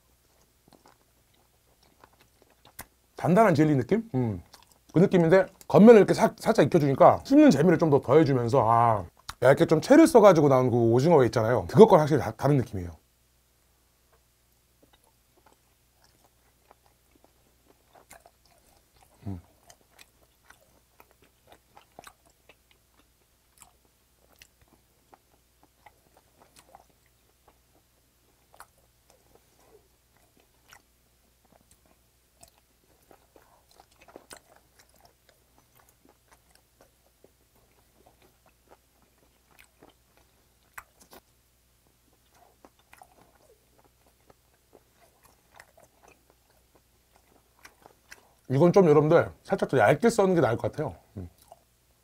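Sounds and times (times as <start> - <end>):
mouth chewing clicks and smacks: 0.3 - 3.0, 4.4 - 5.7, 9.1 - 9.4, 14.1 - 48.5, 51.2 - 51.7.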